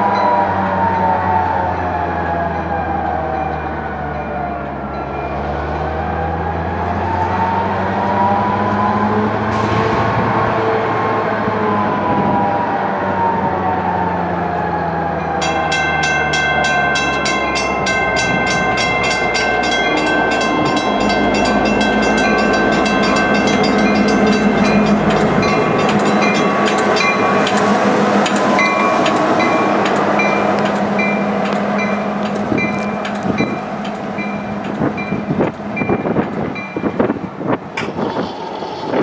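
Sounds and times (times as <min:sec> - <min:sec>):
train moving on rails: 0:00.0 - 0:39.0
locomotive engine running: 0:14.6 - 0:38.0
bell ringing rapidly: 0:15.4 - 0:27.8.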